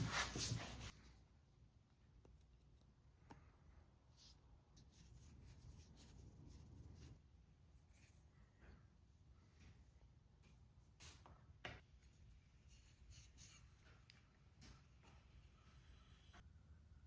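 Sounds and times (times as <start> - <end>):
soft scrapes: 0.0 - 1.2.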